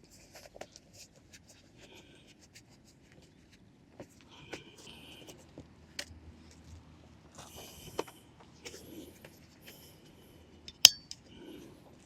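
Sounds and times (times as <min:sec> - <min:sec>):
sharp clink with short ring: 0:10.7 - 0:11.2.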